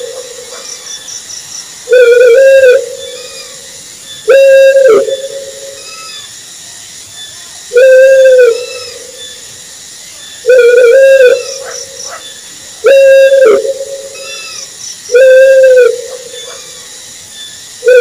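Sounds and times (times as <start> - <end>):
owl hooting: 1.9 - 6.3, 7.7 - 9.4, 10.4 - 16.9, 17.8 - 18.0.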